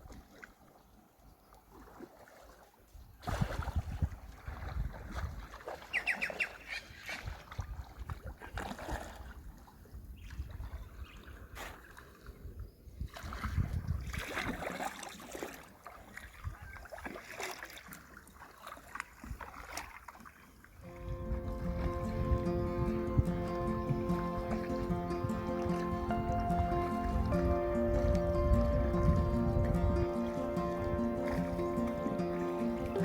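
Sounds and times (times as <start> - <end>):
canoe paddles splashing in water: 0.0 - 33.0
wind rumble on microphone: 3.0 - 5.6, 9.2 - 11.7, 12.3 - 14.6, 20.8 - 33.0.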